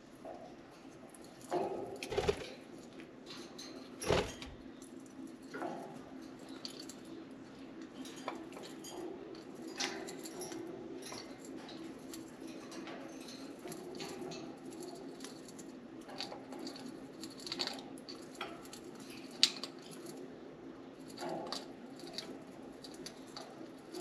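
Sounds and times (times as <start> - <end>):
birds chewing a wooden toy: 8.5 - 20.2.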